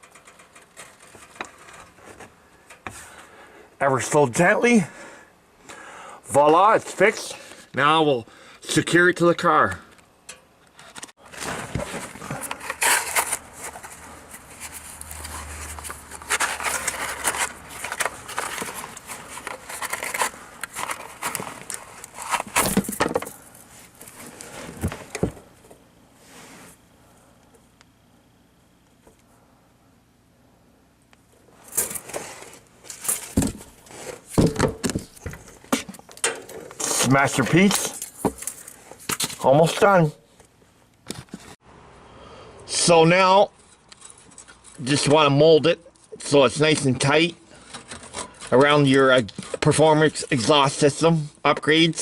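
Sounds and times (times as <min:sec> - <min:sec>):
hands rustling scraping and clicking: 0:10.7 - 0:25.2.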